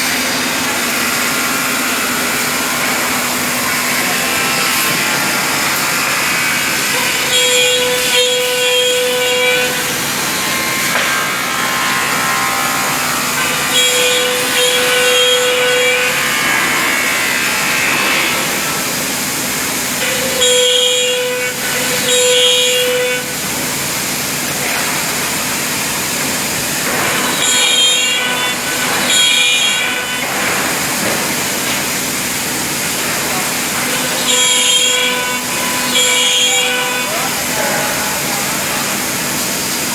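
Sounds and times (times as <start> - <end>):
router cutting wood: 0.0 - 39.9.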